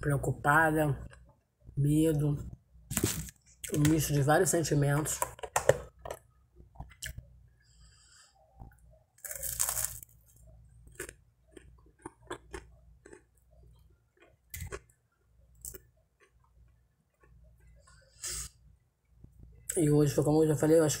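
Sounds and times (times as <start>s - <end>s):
chewing bread: 9.2s - 18.0s.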